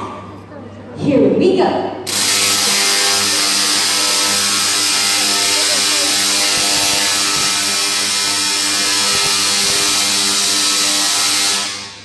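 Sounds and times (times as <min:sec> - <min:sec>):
tesla coil buzzing crackle: 0:02.1 - 0:12.0.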